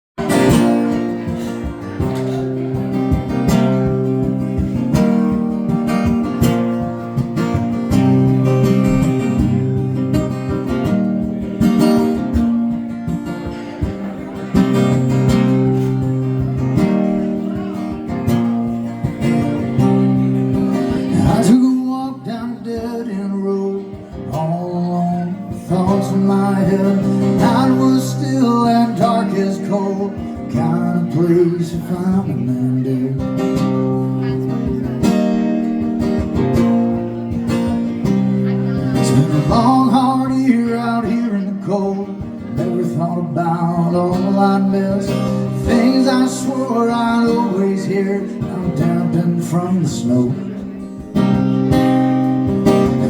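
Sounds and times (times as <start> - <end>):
live country music: 0.2 - 53.0
strummed acoustic guitar: 0.2 - 53.0.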